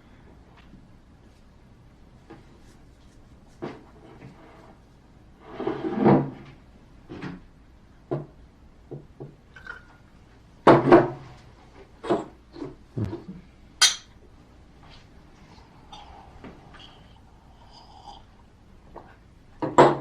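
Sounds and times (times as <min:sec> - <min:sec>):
dishes and glasses clattering: 0:13.8 - 0:14.1
sharp glass clink: 0:13.8 - 0:14.1.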